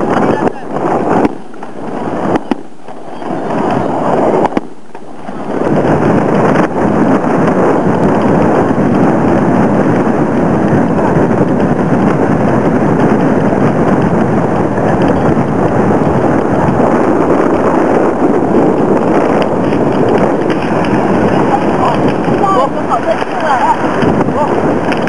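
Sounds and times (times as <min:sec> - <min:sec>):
fireworks crackling and hissing: 0:00.0 - 0:25.0.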